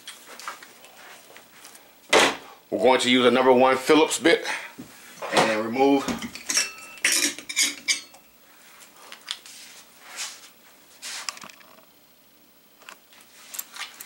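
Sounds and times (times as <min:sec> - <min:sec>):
metal parts clinking on sheet metal: 0:06.2 - 0:08.2.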